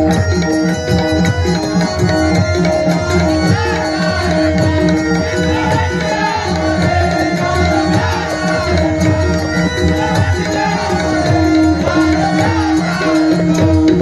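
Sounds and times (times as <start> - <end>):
hand drum rhythm: 0.0 - 14.0
sustained melodic notes: 0.0 - 14.0.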